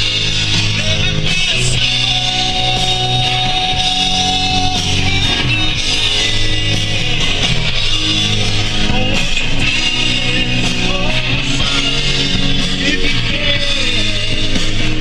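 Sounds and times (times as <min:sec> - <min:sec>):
rock music with guitar: 0:00.0 - 0:15.0.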